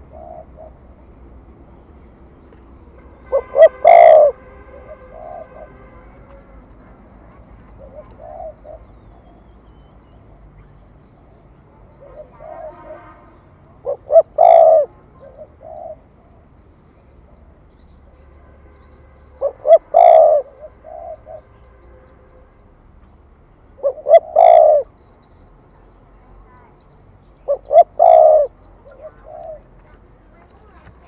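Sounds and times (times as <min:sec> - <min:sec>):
dove cooing: 0:00.0 - 0:01.4, 0:03.3 - 0:09.6, 0:10.6 - 0:16.6, 0:19.4 - 0:21.5, 0:23.8 - 0:25.1, 0:27.3 - 0:31.0.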